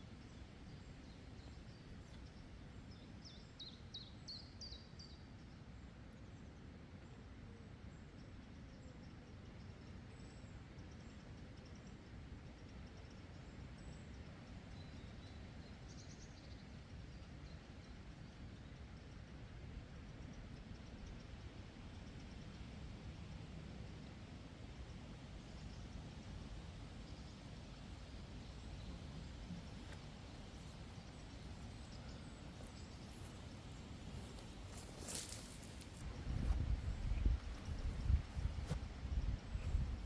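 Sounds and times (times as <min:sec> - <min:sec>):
low steady rumble: 0:27.9 - 0:40.0
small bird chirping: 0:28.4 - 0:40.0.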